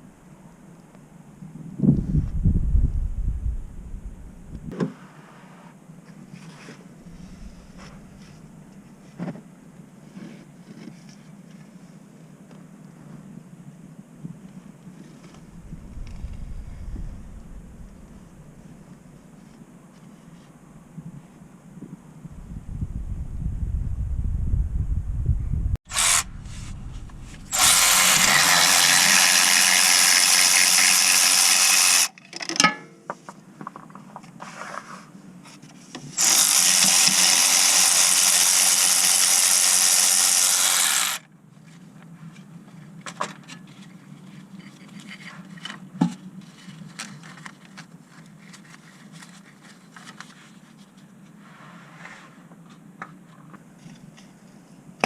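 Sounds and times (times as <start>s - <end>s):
power tool running: 25.9s - 32.1s, 36.2s - 41.2s.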